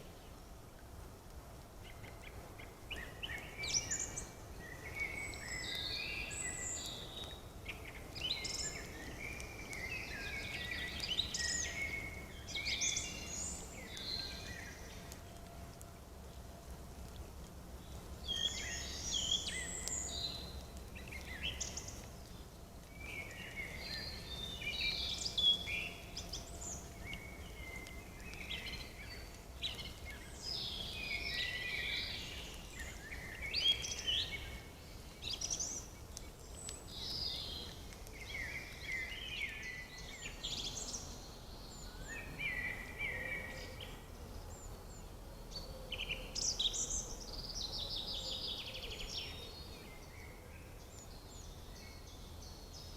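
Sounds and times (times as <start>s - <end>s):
faint low rumble: 0.0s - 33.6s
songbirds chirping and trilling: 1.7s - 52.9s.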